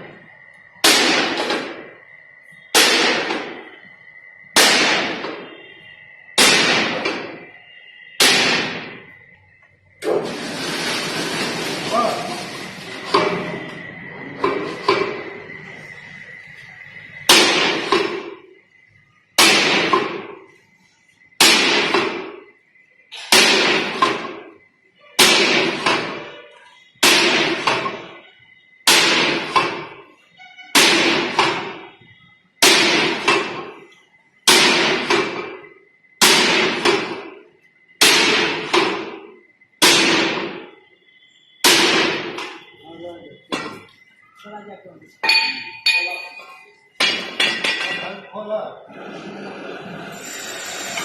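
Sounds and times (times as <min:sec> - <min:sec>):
steel plate clanging: 0:45.2 - 0:48.2.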